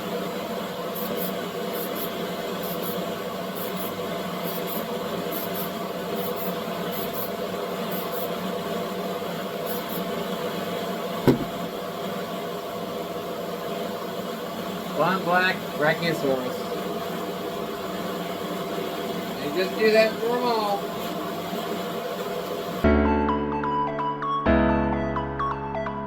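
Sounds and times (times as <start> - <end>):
small electric motor humming: 0.0 - 22.8
short knock with falling tone: 11.3 - 11.6.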